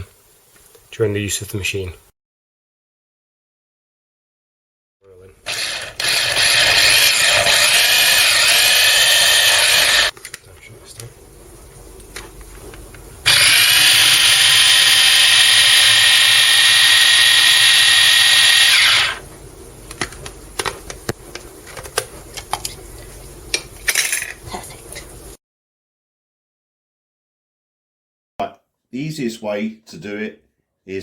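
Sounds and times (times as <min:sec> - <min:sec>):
mini chopper motor whining: 0:05.5 - 0:10.1, 0:13.2 - 0:19.2.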